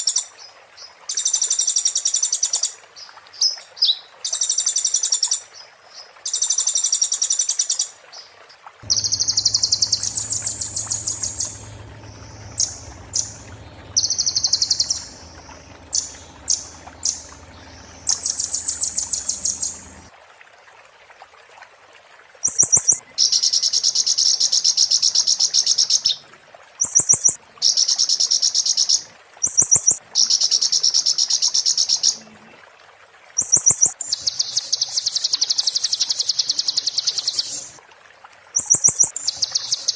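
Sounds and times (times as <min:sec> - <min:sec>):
bird singing rapid high trills: 0:08.8 - 0:20.1.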